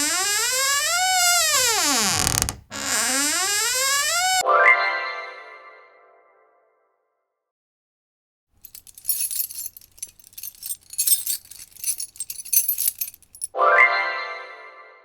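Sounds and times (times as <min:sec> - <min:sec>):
small objects jingling and clinking: 0:08.6 - 0:13.5.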